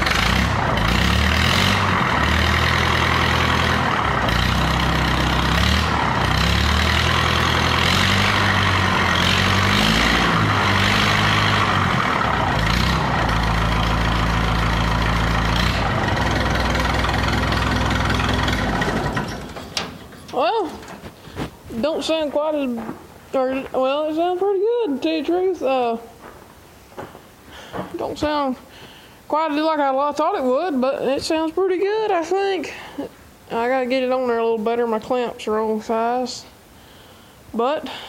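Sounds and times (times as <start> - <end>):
tractor engine revving: 0.0 - 25.2.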